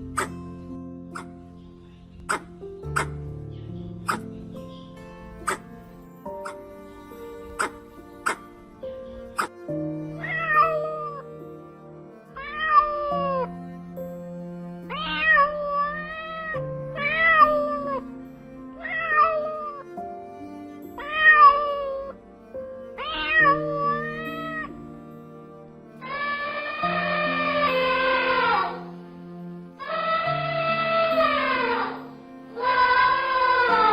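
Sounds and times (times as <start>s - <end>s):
background music: 0.0s - 33.9s
cat meowing: 10.2s - 11.2s, 12.4s - 13.5s, 14.9s - 18.0s, 18.8s - 19.8s, 21.0s - 22.2s, 23.0s - 24.8s, 26.0s - 29.0s, 29.8s - 32.0s, 32.6s - 33.9s.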